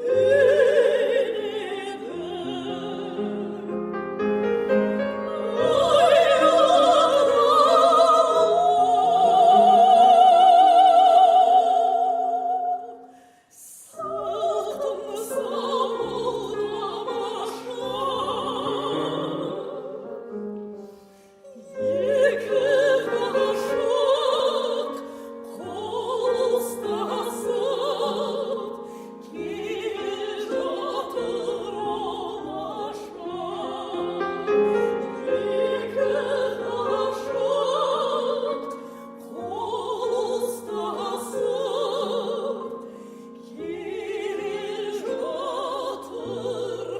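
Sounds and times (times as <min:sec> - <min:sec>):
piano accompaniment: 0:00.0 - 0:11.6.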